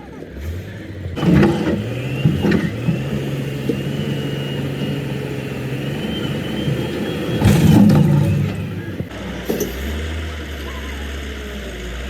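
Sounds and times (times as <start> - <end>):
engine humming: 0.8 - 9.6.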